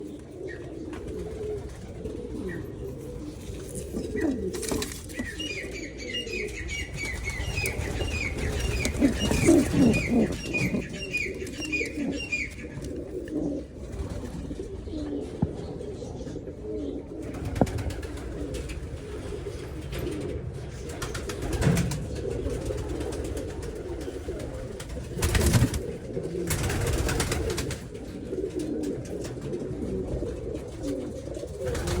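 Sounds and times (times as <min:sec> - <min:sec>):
pigeons cooing: 0:00.0 - 0:32.0
small bird chirping: 0:03.4 - 0:13.0.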